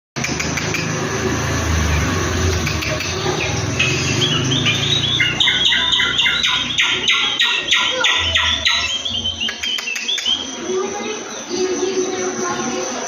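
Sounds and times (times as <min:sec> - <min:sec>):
low hum: 0:00.2 - 0:09.6
bird chirping calls: 0:00.2 - 0:13.0.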